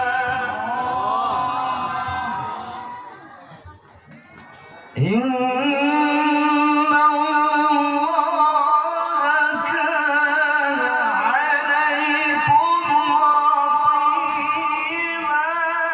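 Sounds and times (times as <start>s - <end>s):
person reciting melodically: 0.0s - 3.5s, 5.0s - 15.9s.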